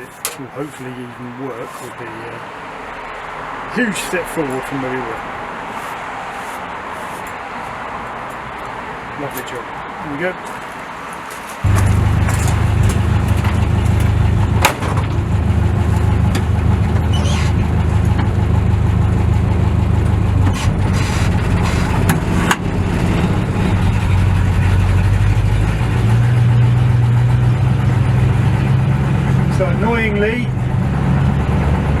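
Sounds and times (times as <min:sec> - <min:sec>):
car engine running: 0:11.6 - 0:32.0.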